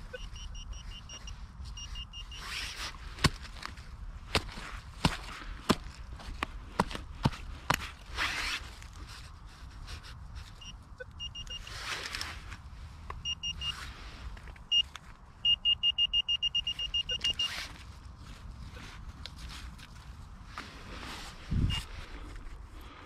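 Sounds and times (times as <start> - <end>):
metal detector beeps: 0.0 - 2.8, 10.5 - 11.9, 13.2 - 13.9, 14.7 - 17.7, 21.6 - 21.9
digging knocks and scraping: 1.7 - 10.7.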